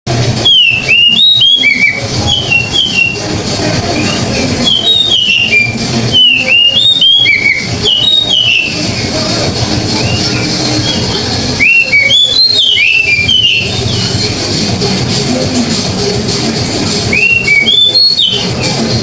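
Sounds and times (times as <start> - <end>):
bird singing whistled phrases: 0.4 - 3.2, 4.0 - 9.2, 10.0 - 14.4, 17.1 - 18.7.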